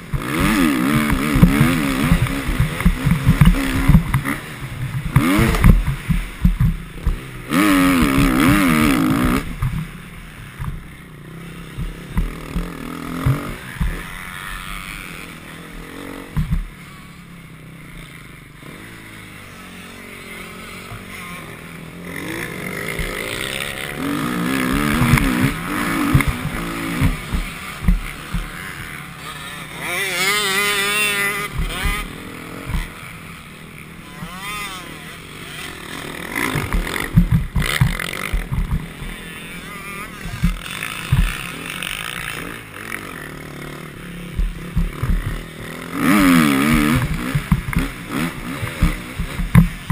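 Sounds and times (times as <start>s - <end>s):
motorbike engine revving: 0.0s - 49.9s
sharp knocks: 24.6s - 29.0s, 36.4s - 39.2s, 40.2s - 41.6s, 44.4s - 45.6s, 46.2s - 49.9s.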